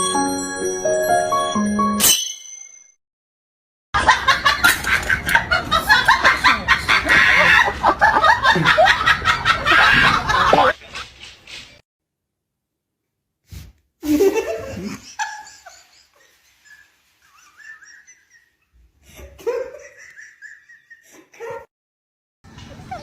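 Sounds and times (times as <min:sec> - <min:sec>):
people laughing: 0:04.0 - 0:11.0, 0:14.1 - 0:21.7.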